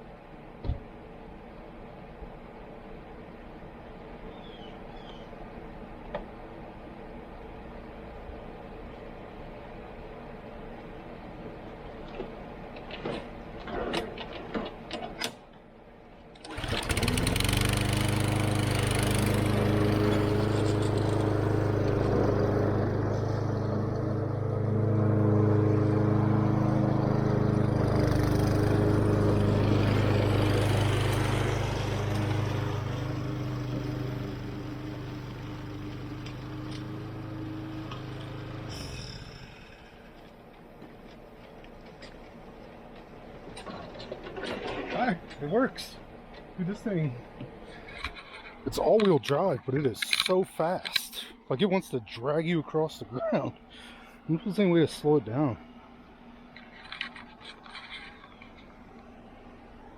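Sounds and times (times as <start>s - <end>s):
lawn mower engine running: 11.8s - 49.1s, 55.0s - 59.9s.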